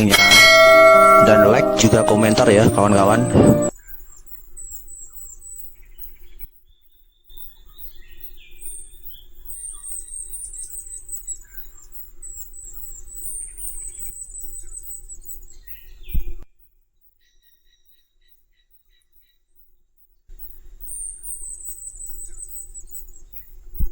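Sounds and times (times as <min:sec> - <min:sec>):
bird singing high thin notes: 0:00.0 - 0:03.7.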